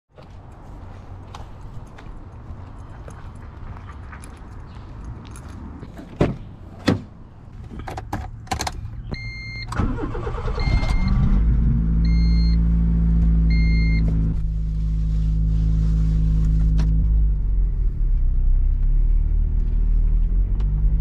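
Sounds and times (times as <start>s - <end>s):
car engine starting and idling: 7.6s - 21.0s.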